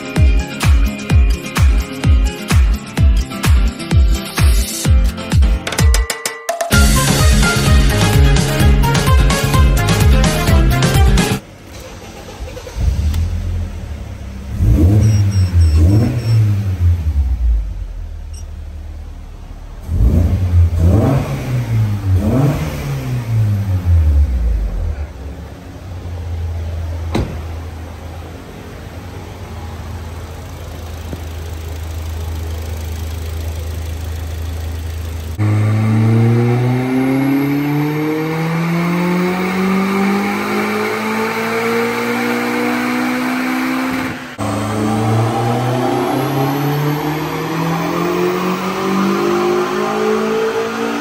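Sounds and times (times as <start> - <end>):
car engine revving and idling: 6.9 - 51.0.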